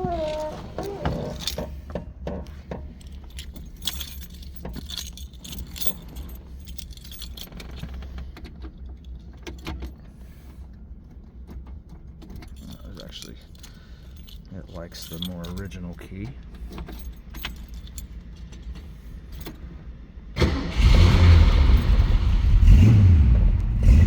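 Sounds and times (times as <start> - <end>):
car keys jangling: 0.0 - 20.6, 21.4 - 22.9
small metallic key clicks: 3.0 - 10.0, 12.2 - 19.6.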